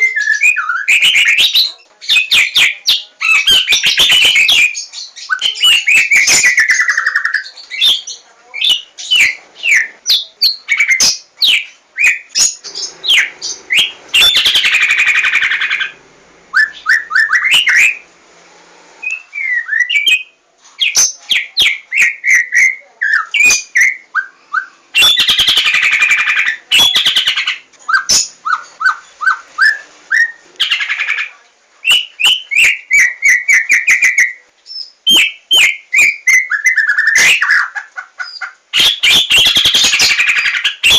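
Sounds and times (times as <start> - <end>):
bird singing whistled song: 0.0 - 15.9, 16.5 - 18.1, 19.0 - 30.8, 31.8 - 37.7, 38.8 - 40.9
buzzy bird chatter: 0.2 - 16.0, 25.0 - 29.5, 35.1 - 40.9.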